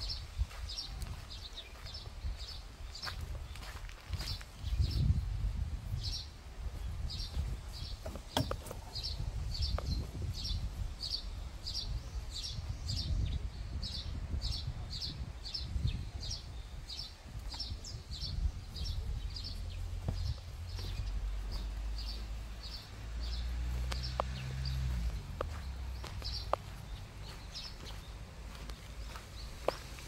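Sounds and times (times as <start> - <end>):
bird chirping: 6.0 - 30.0.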